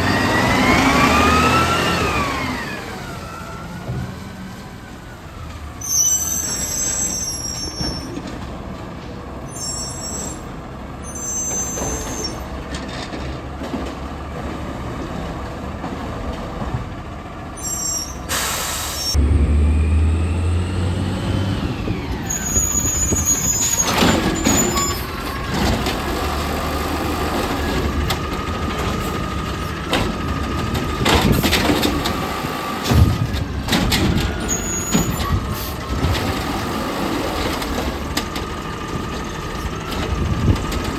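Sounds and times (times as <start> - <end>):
diesel engine with whine: 0.0 - 40.9
air brakes hissing: 5.8 - 8.1, 9.4 - 12.5, 17.6 - 19.2.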